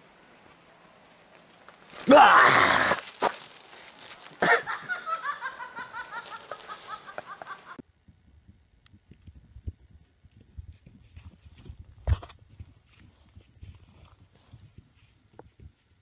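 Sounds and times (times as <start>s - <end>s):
person laughing high-pitched: 4.4s - 7.8s.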